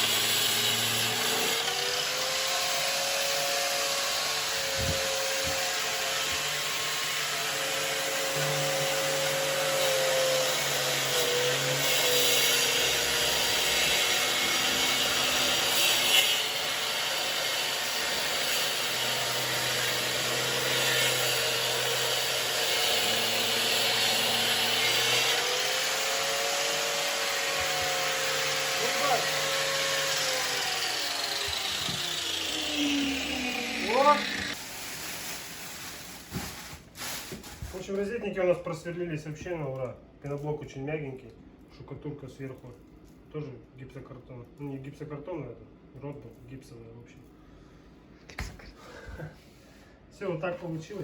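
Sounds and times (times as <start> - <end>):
power drill boring through block: 0.0 - 34.6
dust extraction vacuum running: 16.5 - 35.7.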